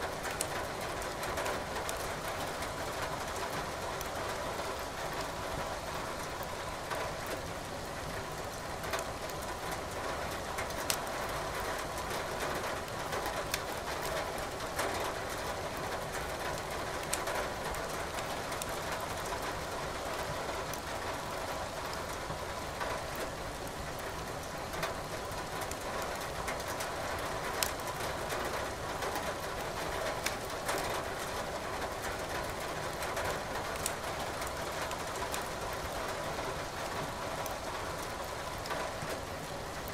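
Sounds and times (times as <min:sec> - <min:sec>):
steady rain hiss: 0:00.0 - 0:39.9
firewood crackling and popping: 0:00.3 - 0:00.5, 0:10.6 - 0:11.1, 0:12.8 - 0:13.8, 0:17.0 - 0:17.2, 0:27.6 - 0:28.0, 0:30.1 - 0:30.5, 0:33.6 - 0:36.0.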